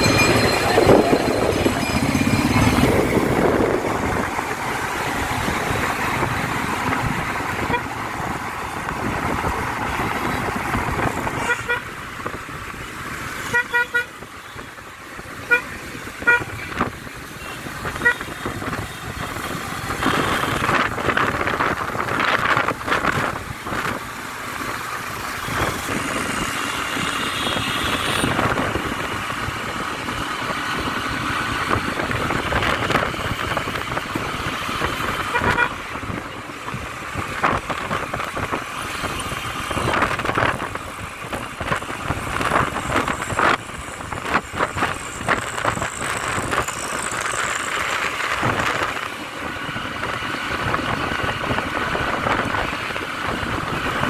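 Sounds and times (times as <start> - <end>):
wind buffeting: 0.0 - 11.4
traffic engines and road noise: 0.0 - 54.0
car horns: 7.6 - 7.9, 11.3 - 12.0, 13.4 - 14.7, 15.4 - 19.1, 19.9 - 20.9, 26.9 - 28.7, 35.2 - 35.8.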